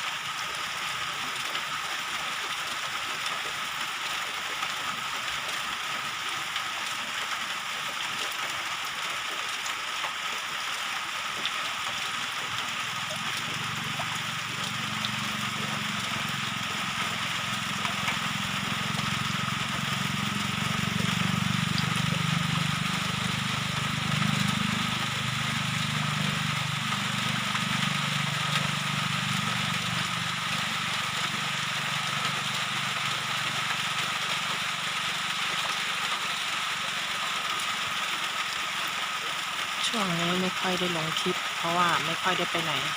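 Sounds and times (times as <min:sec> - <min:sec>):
rain hissing: 0:00.0 - 0:42.9
low hum: 0:12.4 - 0:36.3.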